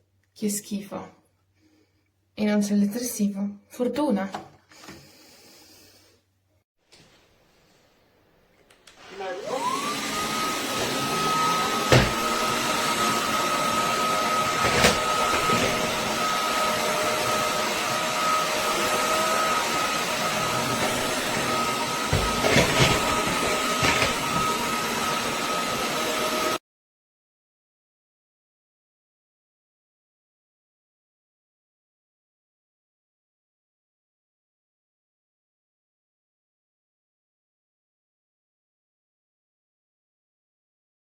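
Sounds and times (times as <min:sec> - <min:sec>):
vacuum motor whine: 0:08.9 - 0:26.6.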